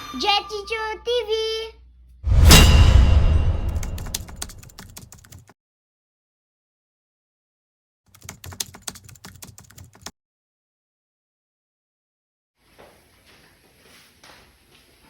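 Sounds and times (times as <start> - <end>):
rapid irregular clicking: 3.9 - 5.5.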